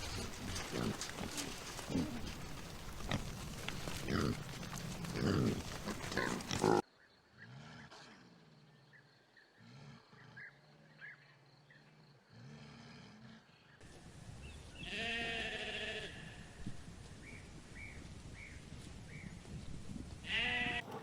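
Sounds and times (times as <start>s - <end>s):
drawn-out low animal calls: 0.0s - 6.8s, 20.3s - 21.0s.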